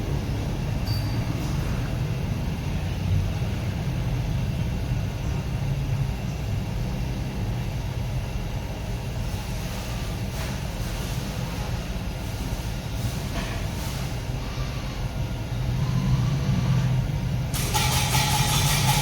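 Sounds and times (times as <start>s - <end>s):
washing machine rumbling: 0.0s - 19.0s.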